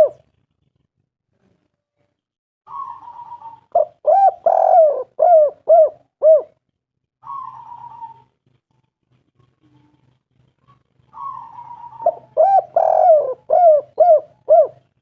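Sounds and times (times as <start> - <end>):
dove cooing: 0.0 - 0.3, 2.7 - 6.6, 7.2 - 15.0
soft rolling purr: 0.0 - 2.2, 8.0 - 15.0.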